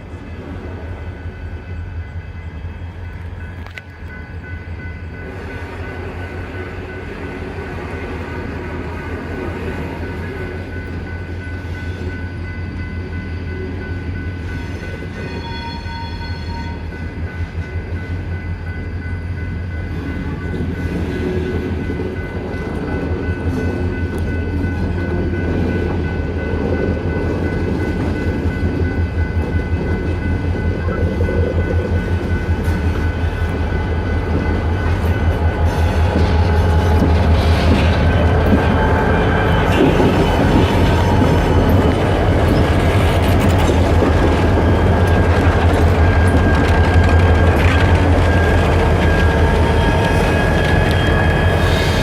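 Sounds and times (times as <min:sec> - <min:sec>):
diesel locomotive engines throbbing: 0:00.0 - 0:52.0.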